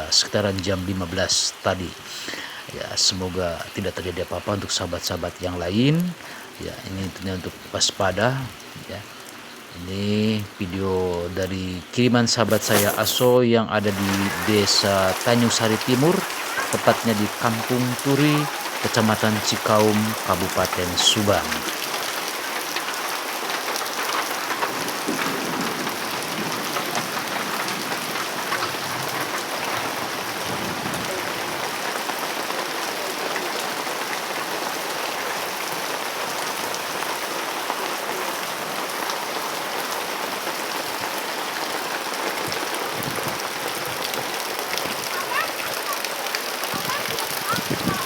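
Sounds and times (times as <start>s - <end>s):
heavy rain falling: 0.0s - 48.0s.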